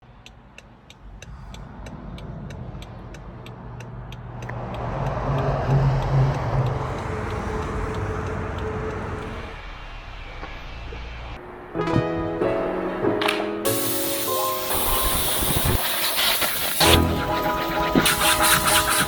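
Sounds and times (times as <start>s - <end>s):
turn signal ticking: 0.0s - 10.1s
road noise: 0.0s - 11.8s
car engine running: 0.9s - 10.0s.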